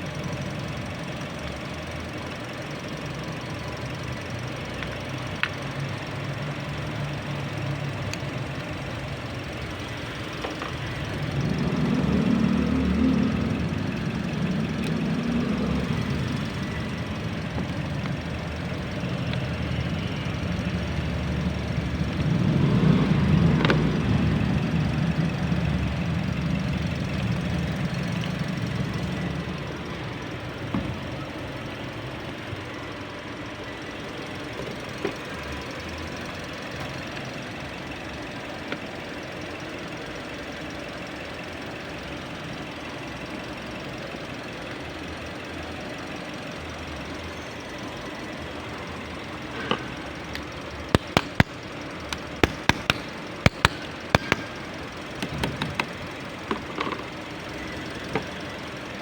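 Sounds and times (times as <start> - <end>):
car engine idling: 0.0 - 59.0
sharp clicks: 49.7 - 57.1.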